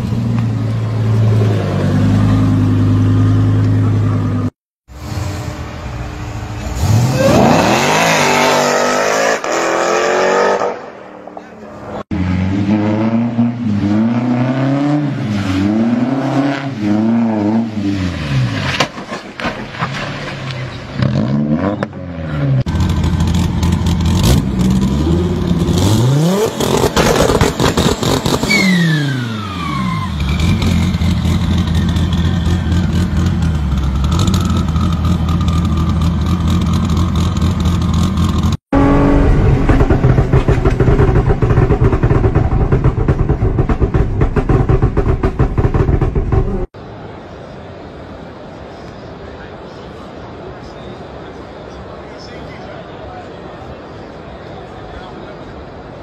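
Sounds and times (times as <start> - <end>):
car engine revving: 6.4 - 11.0, 21.0 - 46.8.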